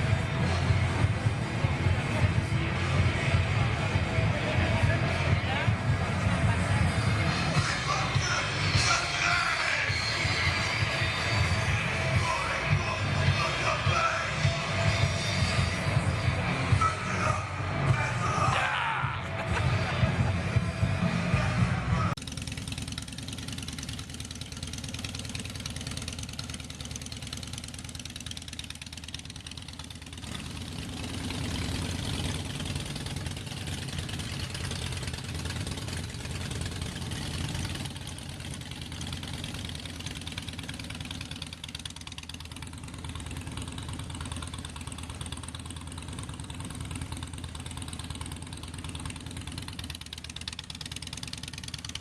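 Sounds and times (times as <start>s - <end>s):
motorcycle engine idling: 0.0s - 52.0s.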